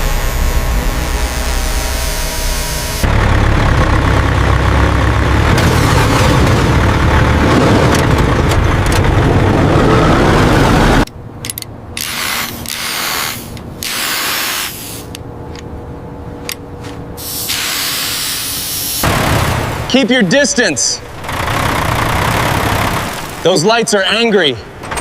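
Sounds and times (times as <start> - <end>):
heavy engine running: 0.0 - 13.0, 14.7 - 19.9, 21.0 - 23.6
hissing bursts: 12.0 - 15.2, 17.2 - 19.4.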